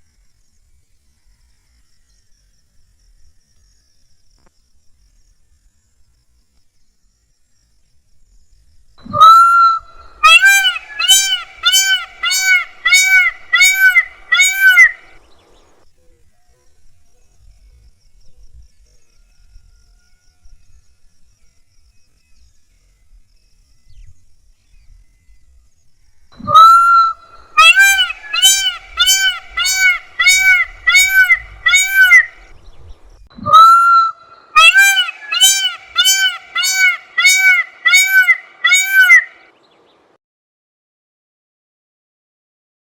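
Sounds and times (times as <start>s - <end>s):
peacock calling: 9.0s - 15.8s, 26.4s - 39.6s.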